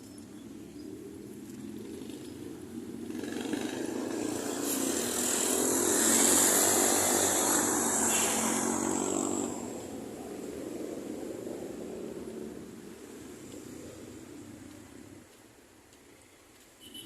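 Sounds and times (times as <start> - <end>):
motor vehicle passing: 0.9 - 12.7.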